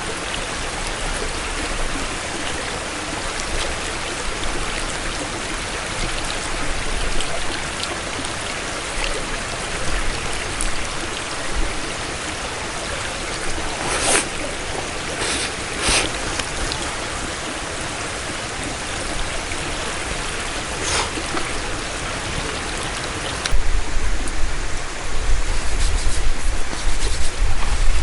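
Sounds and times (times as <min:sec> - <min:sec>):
wind buffeting microphone: 0:09.7 - 0:28.0.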